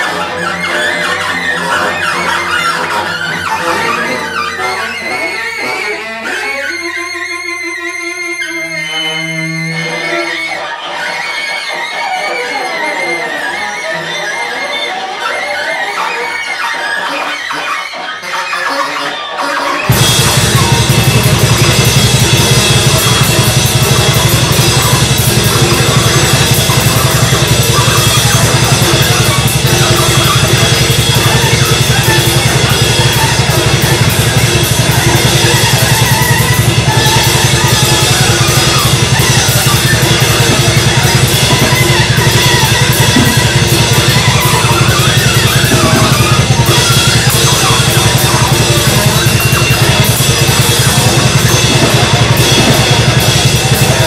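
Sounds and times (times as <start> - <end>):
free-improvised noise music: 16.2 - 54.0
drum kit played hard: 19.8 - 54.0
crashing cymbals: 19.9 - 54.0.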